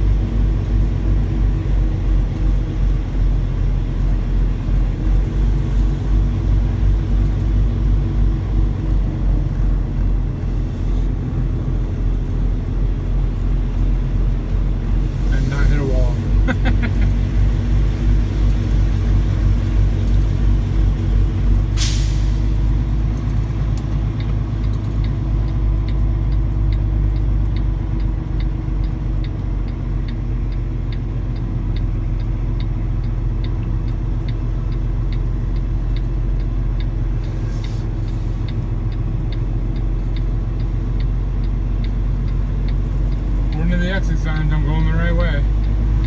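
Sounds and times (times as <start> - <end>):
diesel truck engine running: 0.0 - 46.0
air brakes hissing: 15.0 - 16.4, 21.7 - 22.6, 37.2 - 38.6
even ticking: 23.1 - 37.2, 38.4 - 46.0.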